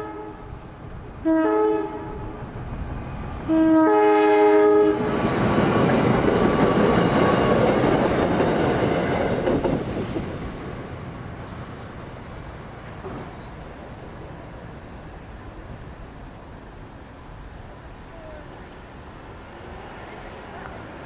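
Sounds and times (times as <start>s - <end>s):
train horn blasts: 0.0s - 0.6s, 1.2s - 2.4s, 3.5s - 5.1s
train wheels on rails: 4.4s - 21.0s.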